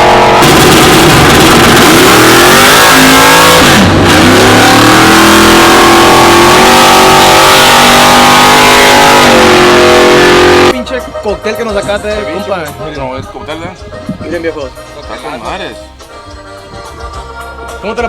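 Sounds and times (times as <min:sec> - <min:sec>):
engine accelerating hard: 0:00.0 - 0:10.8.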